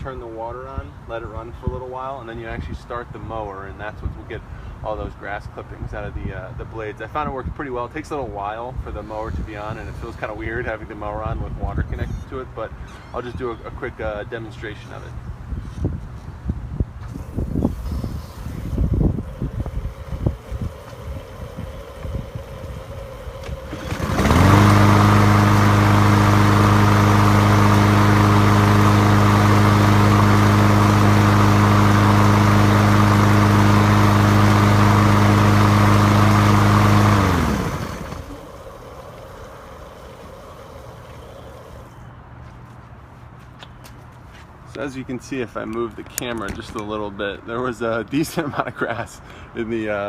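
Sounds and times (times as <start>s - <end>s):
lawn mower engine running: 17.0s - 42.1s.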